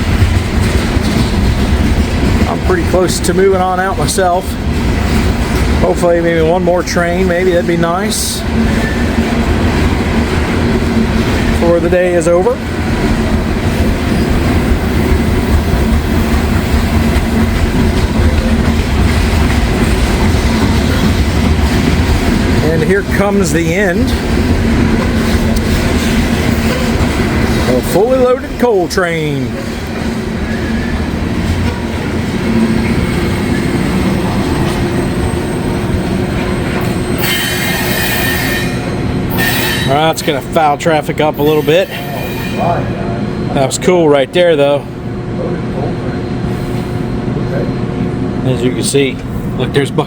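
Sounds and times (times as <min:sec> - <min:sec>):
freight train wheels on rails: 0:00.0 - 0:50.0
high-pitched wheel squeal: 0:37.1 - 0:39.9.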